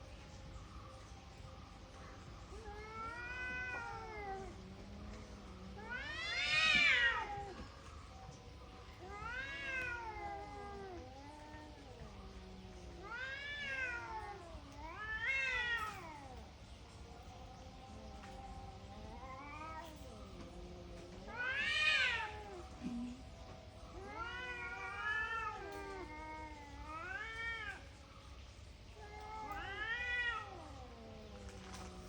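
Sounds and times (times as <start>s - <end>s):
cat meowing: 2.6s - 4.6s, 5.7s - 7.7s, 9.0s - 12.1s, 13.0s - 16.4s, 21.2s - 23.1s, 23.9s - 27.9s, 29.0s - 31.8s.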